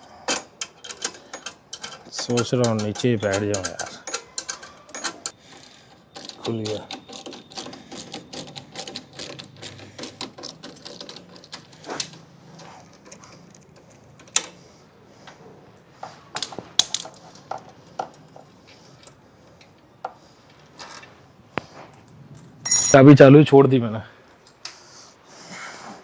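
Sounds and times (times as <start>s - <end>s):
metallic clinks of tools: 22.0s - 23.1s.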